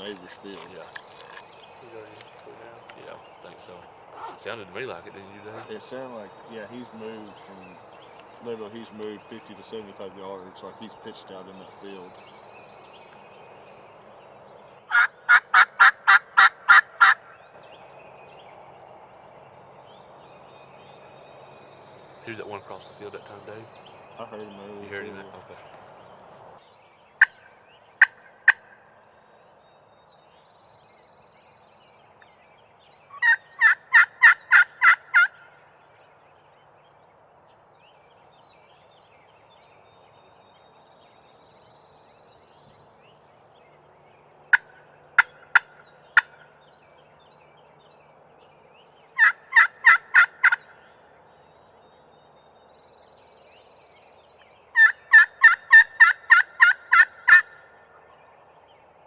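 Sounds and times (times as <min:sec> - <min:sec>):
turkey clucks: 0:00.0 - 0:26.6, 0:33.2 - 0:35.3, 0:49.2 - 0:50.6, 0:54.8 - 0:57.6
turkey yelps: 0:04.1 - 0:04.5, 0:14.9 - 0:17.2, 0:33.2 - 0:35.4, 0:49.2 - 0:50.6, 0:54.8 - 0:57.6.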